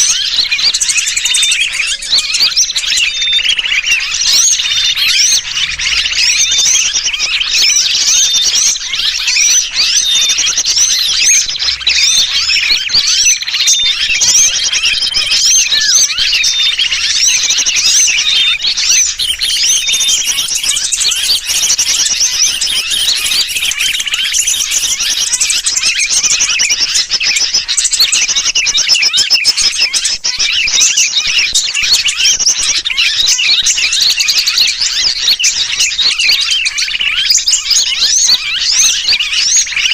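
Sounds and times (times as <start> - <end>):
bulbul distress calls: 0.0 - 39.9
chorus of small birds calling: 0.0 - 39.9.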